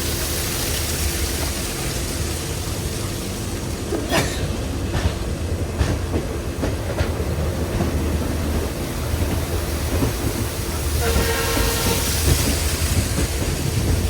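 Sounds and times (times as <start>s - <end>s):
train rumbling on rails: 0.0s - 14.0s
wheels clacking over rail joints: 0.1s - 14.0s.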